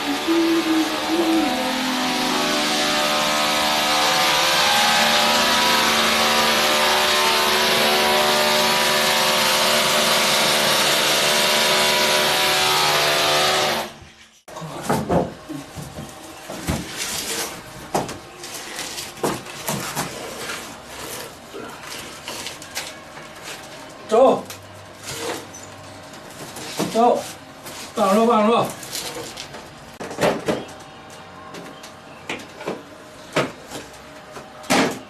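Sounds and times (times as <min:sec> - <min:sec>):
power tool motor running: 0:00.0 - 0:14.0.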